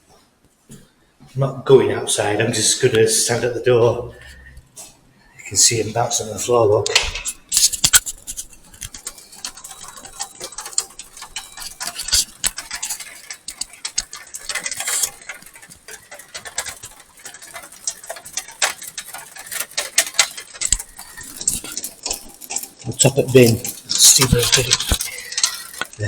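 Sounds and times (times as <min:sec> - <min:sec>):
hailstones pattering: 0:05.4 - 0:26.0.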